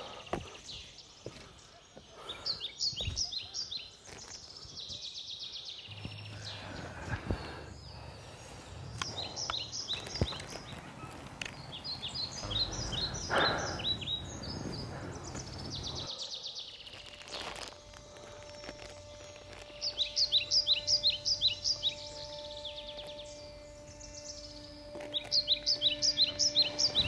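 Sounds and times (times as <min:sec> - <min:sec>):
birds chirping: 0:00.0 - 0:27.0
low steady hum: 0:16.9 - 0:27.0.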